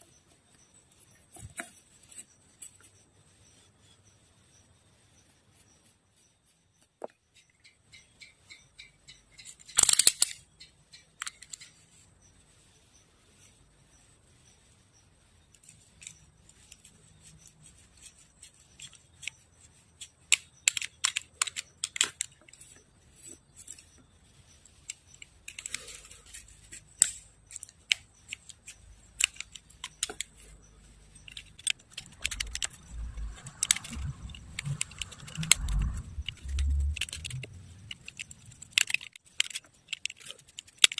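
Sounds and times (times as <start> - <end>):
small objects handled by hand: 0.0 - 7.7, 9.2 - 40.9
rattle: 7.3 - 13.5, 15.5 - 40.9.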